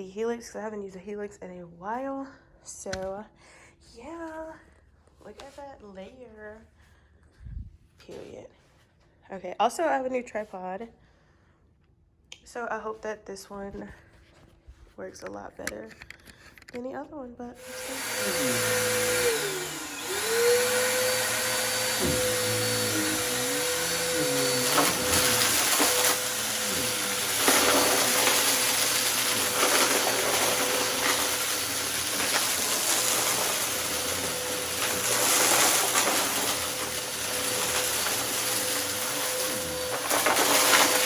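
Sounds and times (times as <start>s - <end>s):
vacuum cleaner motor whine: 17.6s - 41.0s.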